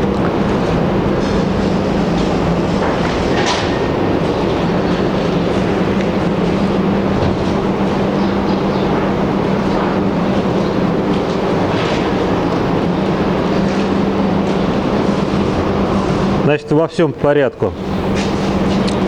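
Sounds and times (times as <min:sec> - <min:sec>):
machine rumble with low hum: 0:00.0 - 0:19.0.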